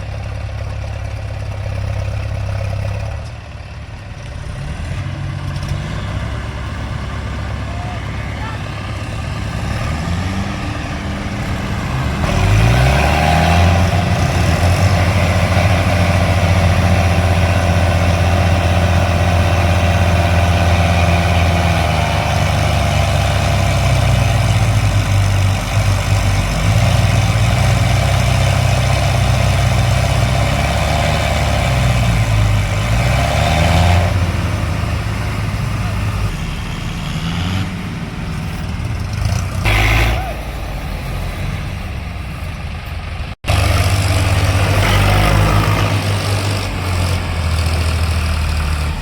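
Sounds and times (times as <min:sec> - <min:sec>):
tractor diesel engine revving: 0:00.0 - 0:49.0.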